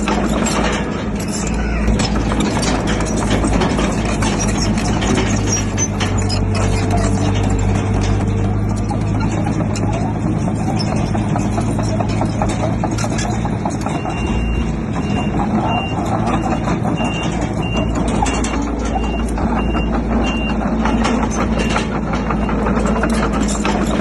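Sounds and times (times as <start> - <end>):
clanking and rattling: 0.0 - 24.0
diesel machinery running: 0.0 - 24.0
reversing alarm beeping: 13.8 - 22.8.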